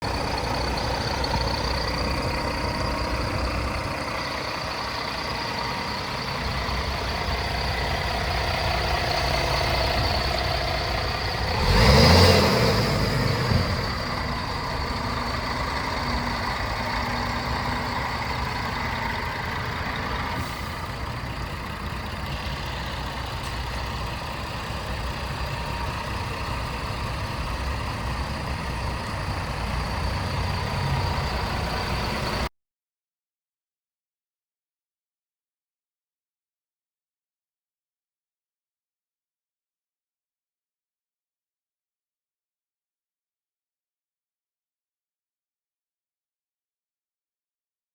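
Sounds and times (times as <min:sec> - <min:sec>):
diesel truck idling: 0:00.0 - 0:32.5.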